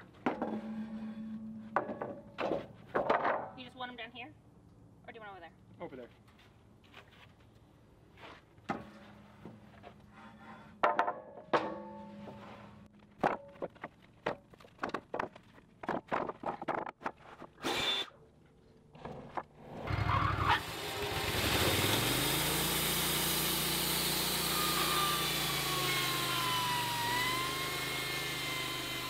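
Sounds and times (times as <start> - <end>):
whine falling in pitch: 0.6 - 2.0
sawmill engine running: 20.6 - 29.0.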